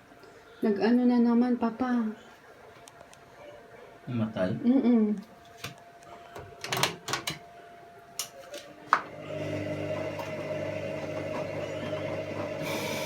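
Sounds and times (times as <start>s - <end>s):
washing machine hum: 6.4s - 13.0s
water running into machine: 9.1s - 13.0s.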